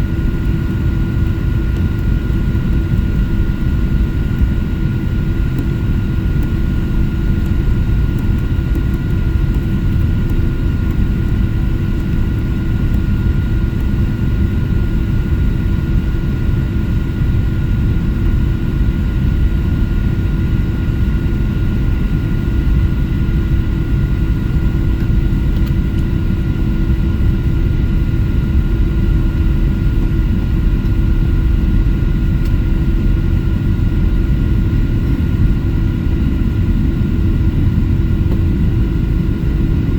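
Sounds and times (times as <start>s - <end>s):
airplane engines taxiing: 0.0s - 19.5s, 20.1s - 39.9s.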